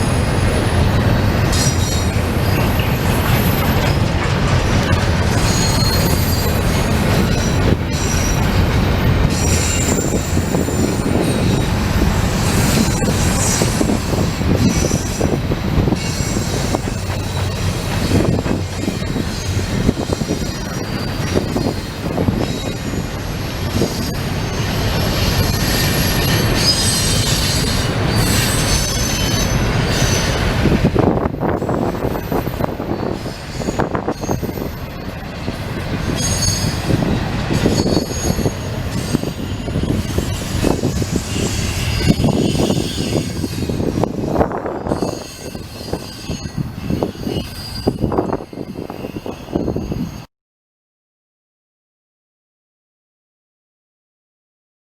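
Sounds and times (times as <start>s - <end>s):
freight train wheels rumbling on rails: 0.0s - 50.3s
high wheel squeals: 5.3s - 8.6s, 9.3s - 11.7s, 12.3s - 30.7s, 31.4s - 50.2s.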